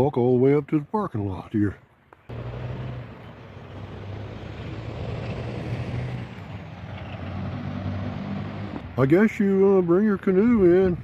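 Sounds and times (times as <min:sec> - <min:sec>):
road noise: 0:00.0 - 0:11.0
vehicle engine hum: 0:02.1 - 0:10.6.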